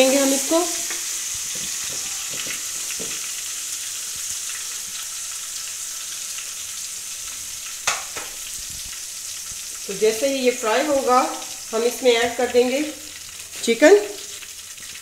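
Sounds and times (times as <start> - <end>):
paste frying in hot oil: 0.0 - 15.0.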